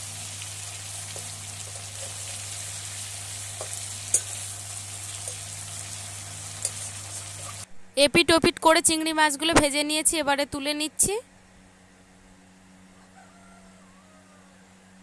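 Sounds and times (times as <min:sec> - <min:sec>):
prawns sizzling in oil: 0:00.0 - 0:07.7.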